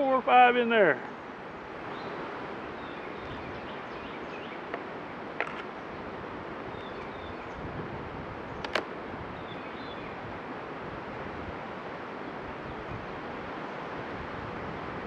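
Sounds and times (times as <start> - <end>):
wind on microphone: 1.5 - 15.0
sharp click: 8.6 - 8.9.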